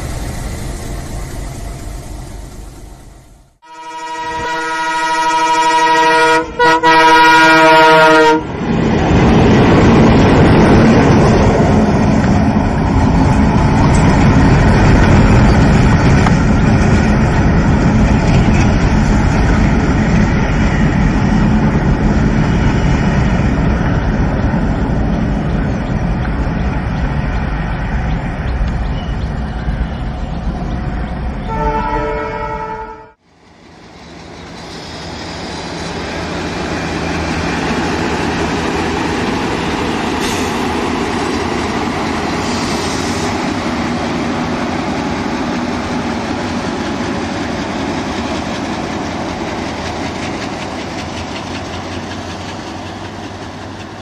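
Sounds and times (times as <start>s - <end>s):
train rumbling past: 0.0s - 54.0s
train horn: 3.6s - 8.5s, 31.4s - 33.2s.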